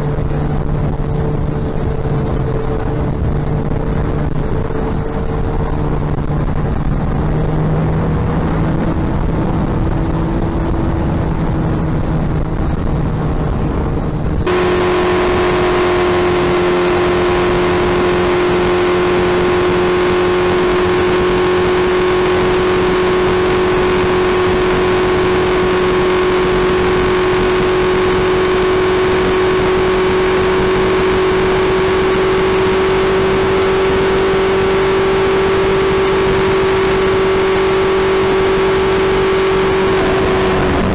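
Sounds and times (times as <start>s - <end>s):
motorcycle engine running steadily: 0.0s - 40.9s.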